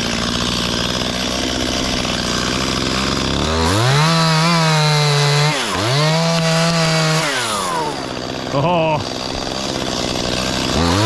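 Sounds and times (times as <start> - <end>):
chainsaw idling and revving: 0.0 - 11.0.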